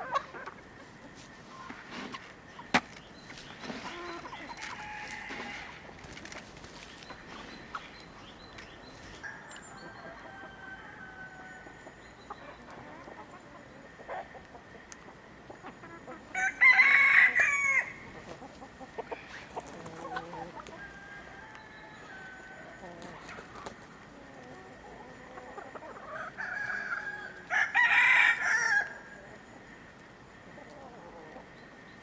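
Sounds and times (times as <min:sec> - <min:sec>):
chickens clucking: 0:00.0 - 0:32.0
rooster crowing: 0:04.6 - 0:05.9, 0:09.2 - 0:12.0, 0:16.3 - 0:18.3, 0:19.0 - 0:23.6, 0:24.5 - 0:29.2.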